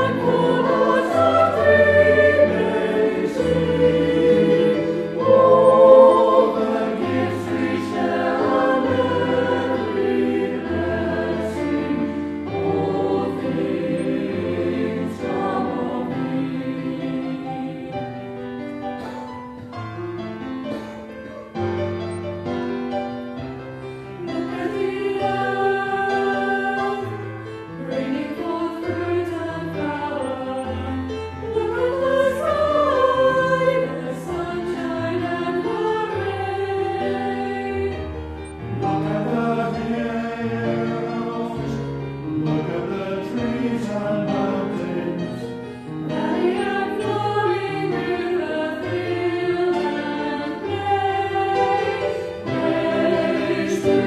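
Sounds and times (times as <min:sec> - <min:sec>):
choir singing a hymn: 0:00.0 - 0:54.0
held accompanying chords: 0:00.0 - 0:54.0.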